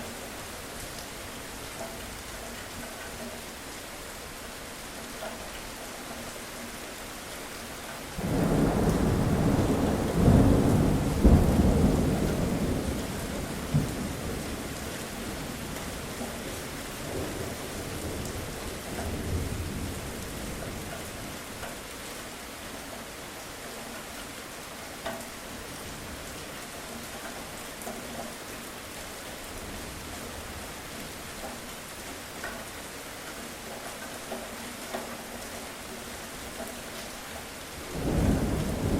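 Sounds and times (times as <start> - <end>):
steady rain falling: 0.0 - 38.9
thunderclap: 8.2 - 13.0, 38.0 - 38.9.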